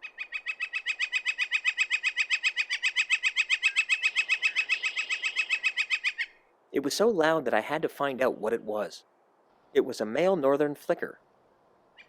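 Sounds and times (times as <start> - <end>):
woodpecker rapid call: 0.0 - 6.4.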